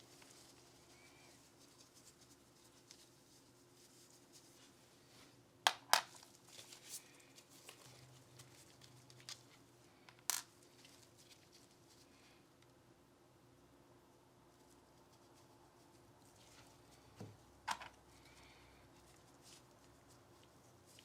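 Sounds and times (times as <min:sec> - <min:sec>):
faint handling rustle: 0:00.0 - 0:05.4, 0:06.1 - 0:12.6, 0:14.5 - 0:21.0
sharp clicks of small parts: 0:05.7 - 0:06.2, 0:10.1 - 0:10.5.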